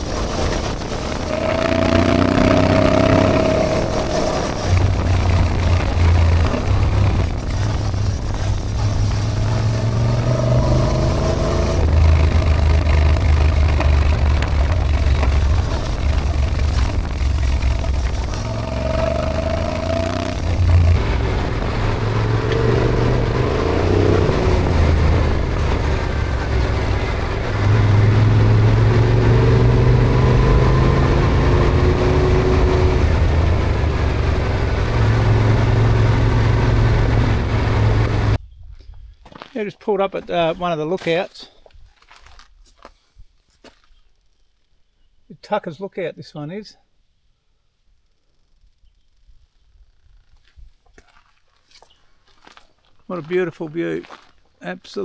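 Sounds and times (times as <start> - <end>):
motorcycle engine running: 0.0 - 38.4.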